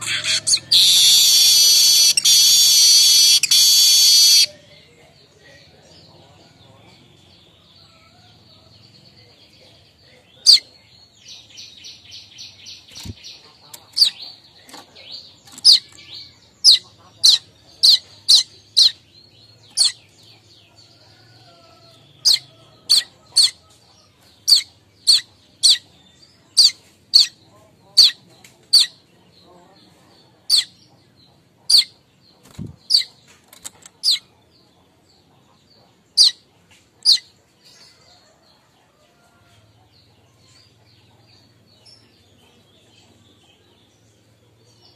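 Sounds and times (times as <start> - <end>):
bird buzzy chattering trill: 0.0 - 4.5
bird sharp chip calls: 0.0 - 4.5.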